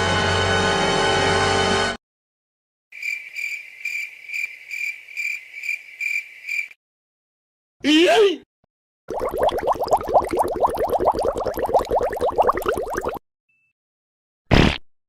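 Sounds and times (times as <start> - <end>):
cricket chirping: 3.0 - 6.8.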